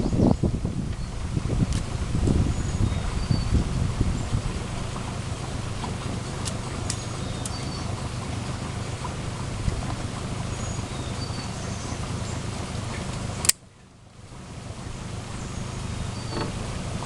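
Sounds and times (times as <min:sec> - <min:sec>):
wind rumbling on microphone: 0:00.0 - 0:13.5, 0:14.1 - 0:17.0
sharp click: 0:13.4 - 0:13.6.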